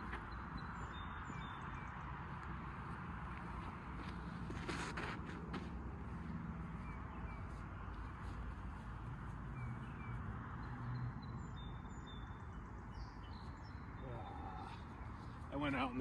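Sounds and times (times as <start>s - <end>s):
steady outdoor rumble: 0.0s - 16.0s
faint bird chirps: 9.6s - 15.4s.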